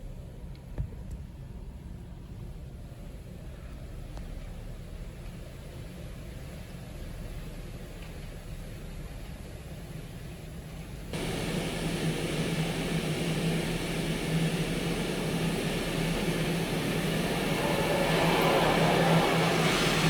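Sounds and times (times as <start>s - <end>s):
pump hum: 11.2s - 20.0s
water spray hissing over car: 11.2s - 20.0s.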